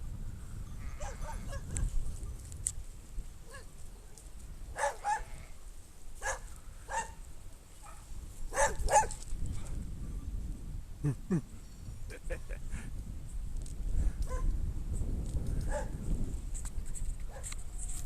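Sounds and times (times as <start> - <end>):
dog barking: 1.0 - 1.8, 4.8 - 5.3, 6.2 - 7.2, 7.8 - 9.2, 14.3 - 14.5, 15.7 - 16.0.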